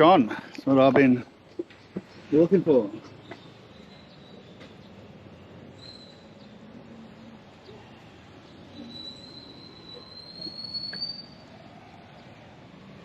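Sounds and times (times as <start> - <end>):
street background noise: 0.0 - 13.0
thin high squeal: 8.8 - 11.6.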